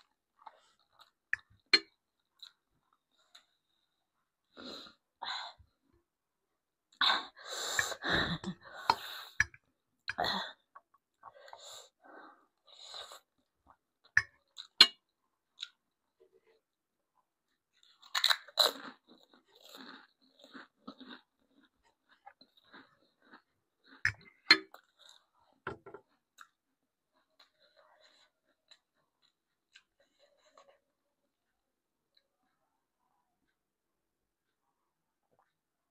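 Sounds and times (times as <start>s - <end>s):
person chewing crunchy food: 17.7s - 31.0s.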